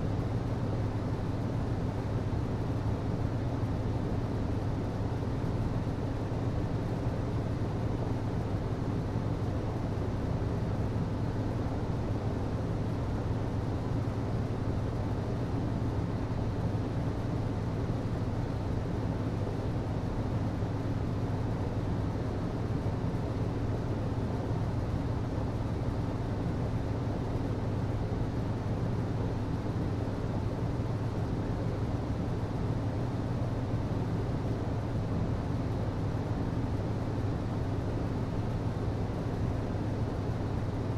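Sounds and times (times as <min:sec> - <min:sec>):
hvac system hum: 0:00.0 - 0:40.9.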